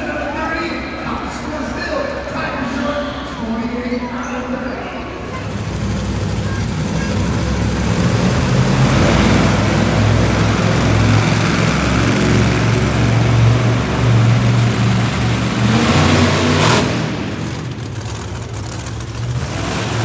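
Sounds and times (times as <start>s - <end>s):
monster truck engine revving: 5.0s - 20.0s.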